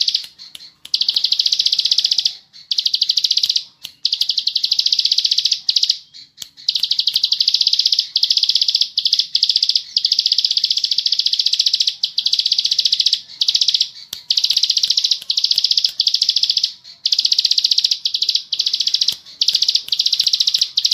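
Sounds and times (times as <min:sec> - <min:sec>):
bird rattling trill: 0:06.6 - 0:20.9.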